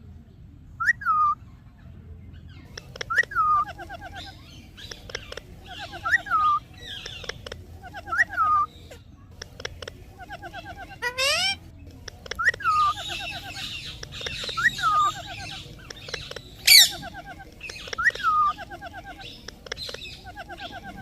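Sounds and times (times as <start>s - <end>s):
sharp clicks: 2.7s - 3.3s, 6.9s - 7.7s, 9.4s - 10.0s, 11.8s - 18.4s, 19.2s - 20.8s
parrot talking: 2.7s - 21.0s.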